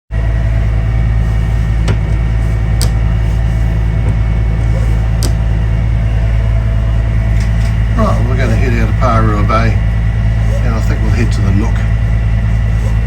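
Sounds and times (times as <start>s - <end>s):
diesel engine running: 0.1s - 13.0s.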